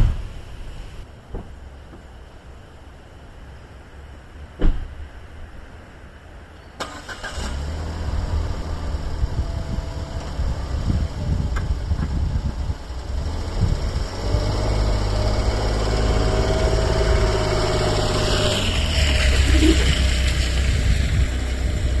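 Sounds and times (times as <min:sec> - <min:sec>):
small van engine starting and running: 0:06.8 - 0:22.0.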